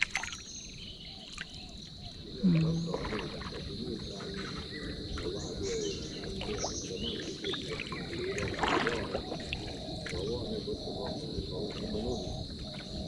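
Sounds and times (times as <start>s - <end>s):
bird chirps: 0.0s - 8.5s.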